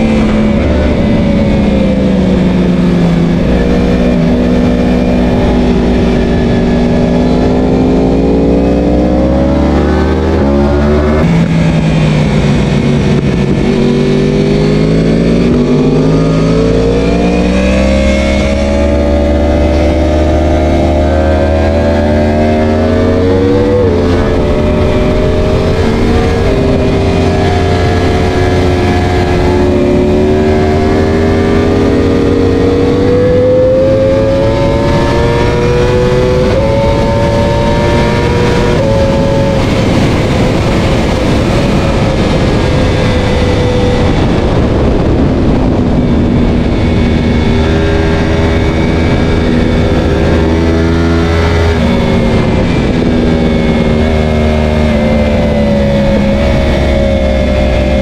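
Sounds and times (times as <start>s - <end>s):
motorcycle engine at racing speed: 0.0s - 58.0s.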